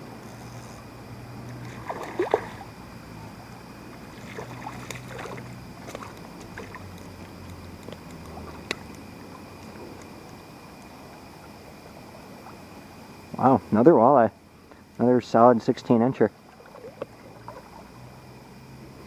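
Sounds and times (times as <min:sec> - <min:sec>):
water splashing and sloshing: 0:01.3 - 0:13.5, 0:16.2 - 0:18.4.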